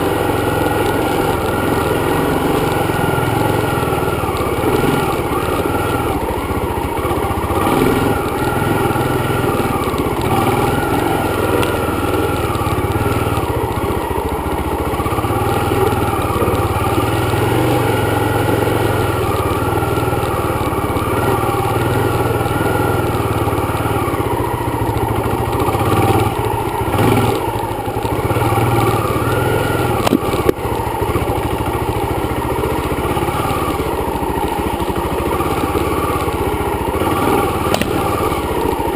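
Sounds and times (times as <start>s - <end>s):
dirt bike engine running: 0.0s - 38.9s
sharp click: 37.6s - 38.1s.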